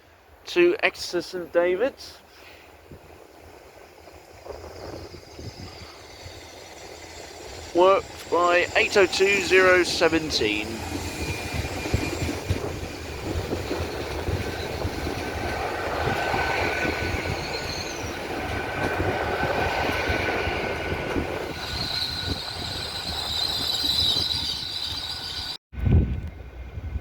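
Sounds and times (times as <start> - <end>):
train rumble: 0.2 - 27.0
high-pitched wheel squeal: 16.3 - 18.3, 21.4 - 25.6.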